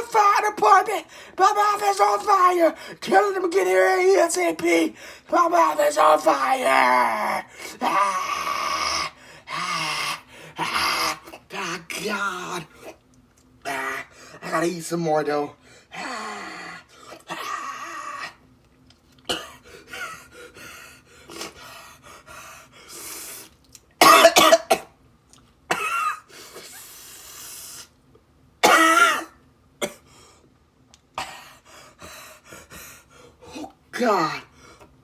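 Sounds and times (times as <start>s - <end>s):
man breathing hard: 1.1s - 1.4s, 4.9s - 5.3s, 9.1s - 10.6s, 19.6s - 23.4s, 31.3s - 33.7s
man coughing: 19.3s - 20.2s, 24.0s - 25.0s, 25.7s - 26.3s, 28.6s - 30.1s.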